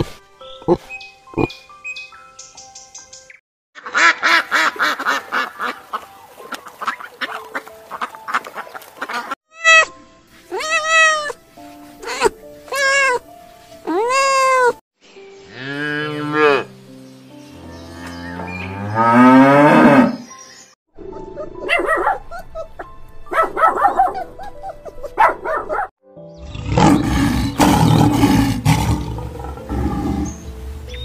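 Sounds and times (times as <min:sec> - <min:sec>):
kitten meowing: 0:10.5 - 0:11.4, 0:12.0 - 0:13.2, 0:13.9 - 0:14.8
puppy yipping: 0:21.4 - 0:25.9
lion roaring: 0:26.4 - 0:30.4.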